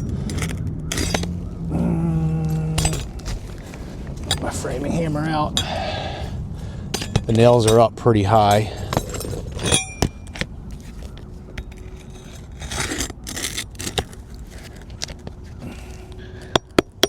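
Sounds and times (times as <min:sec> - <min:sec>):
hammer scraping under shingles: 0:00.0 - 0:01.4, 0:06.9 - 0:17.0.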